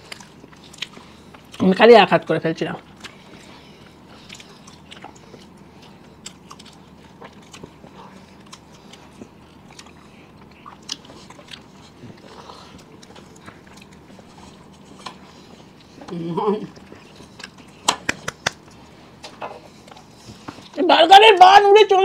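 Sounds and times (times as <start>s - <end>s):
people chewing with mouth clicks: 0.0s - 1.8s, 2.8s - 20.8s.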